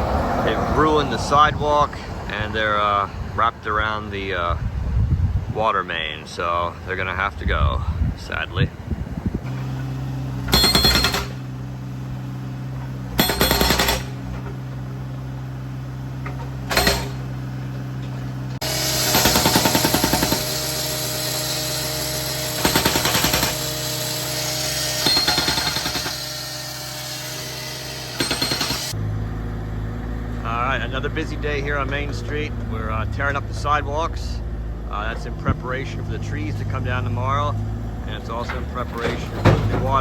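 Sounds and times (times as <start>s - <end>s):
engine droning: 0.0s - 40.0s
jackhammer hammering concrete: 10.5s - 11.5s, 13.2s - 14.3s, 16.6s - 17.3s, 18.6s - 29.0s.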